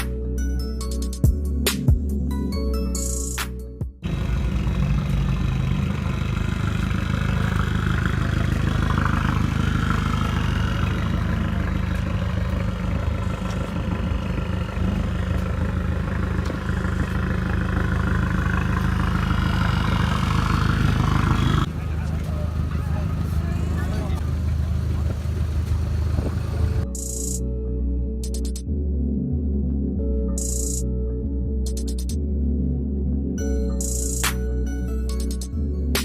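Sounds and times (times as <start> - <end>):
car engine idling: 4.0 - 27.4.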